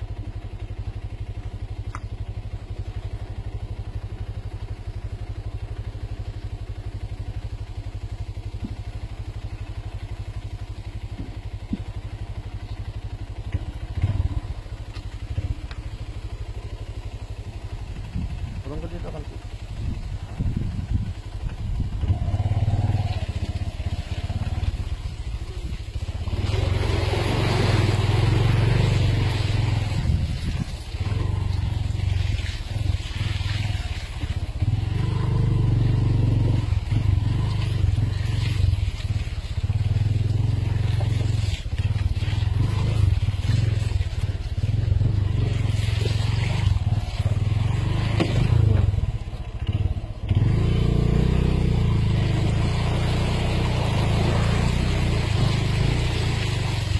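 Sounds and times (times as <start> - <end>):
vehicle engine running: 0.0 - 56.9.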